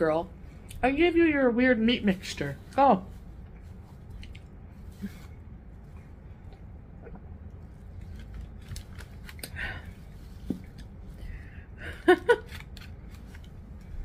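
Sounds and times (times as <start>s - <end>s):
chewing and swallowing mouth sounds: 4.1s - 4.6s.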